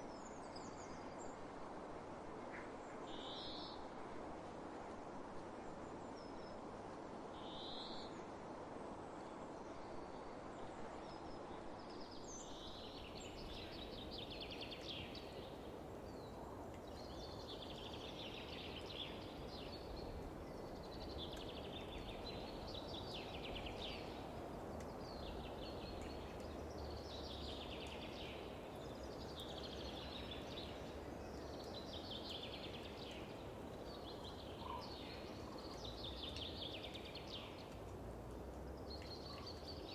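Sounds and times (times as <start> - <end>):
wind rustling: 12.3 - 39.9.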